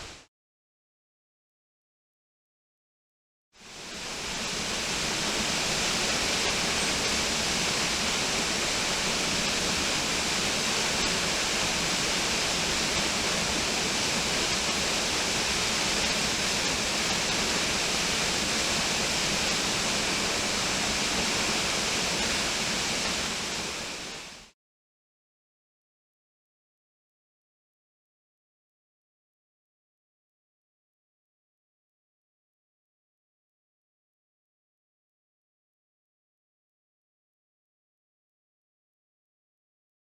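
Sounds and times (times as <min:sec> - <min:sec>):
waterfall roaring: 0:03.9 - 0:24.5.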